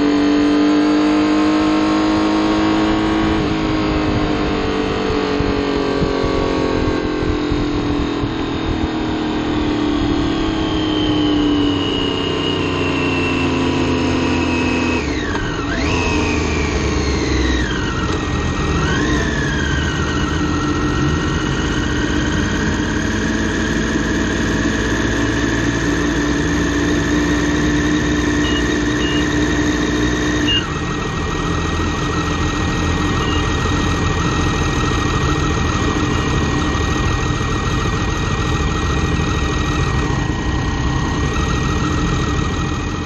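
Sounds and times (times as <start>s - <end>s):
motorcycle engine at low revs: 0.0s - 43.0s.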